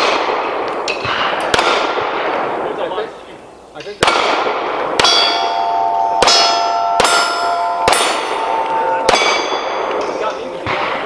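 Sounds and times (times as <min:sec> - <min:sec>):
pistol shots: 0:00.0 - 0:02.7, 0:04.0 - 0:11.0
steel plate ringing: 0:05.0 - 0:10.8.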